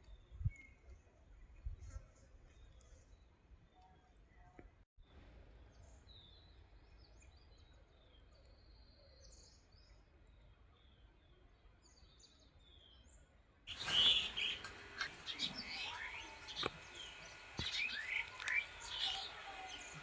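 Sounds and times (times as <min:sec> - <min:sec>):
distant songbirds chirping: 0:05.6 - 0:20.0.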